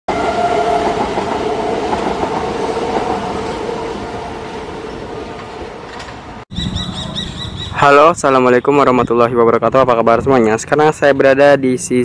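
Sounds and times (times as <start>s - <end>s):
train rolling on rails: 0.1s - 7.1s.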